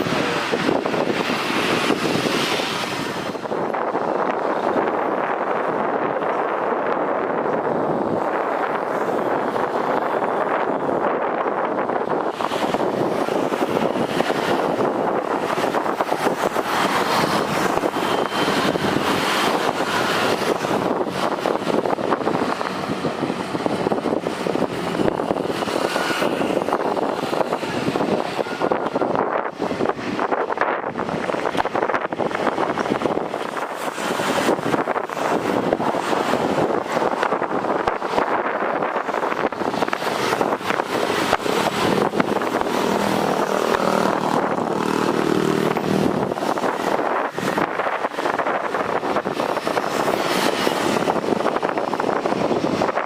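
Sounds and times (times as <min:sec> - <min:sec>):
wind buffeting microphone: 0:00.0 - 0:53.0
jet engine rushing: 0:11.9 - 0:53.0.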